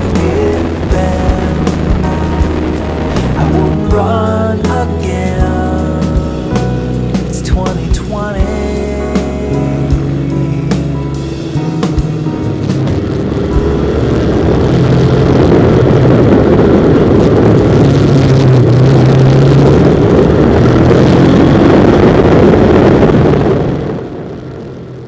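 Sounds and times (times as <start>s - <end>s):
motorcycle engine running: 0.0s - 19.9s.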